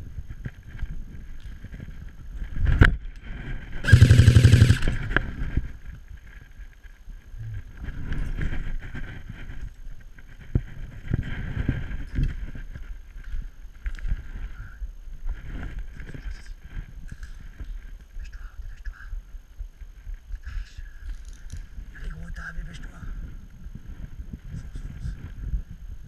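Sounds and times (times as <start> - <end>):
rustling of movement: 0.0 - 18.2
airsoft gun automatic burst: 3.8 - 5.2.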